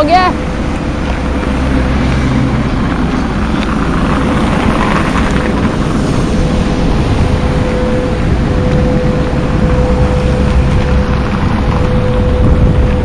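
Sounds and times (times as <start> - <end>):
train rumbling past slowly: 0.0 - 13.0.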